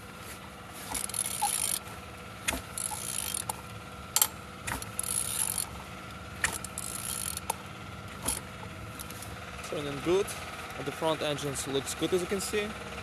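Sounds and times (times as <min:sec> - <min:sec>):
ratchet wrench turning engine: 0:00.0 - 0:13.0
ratchet clicks: 0:00.9 - 0:05.8, 0:06.4 - 0:09.3.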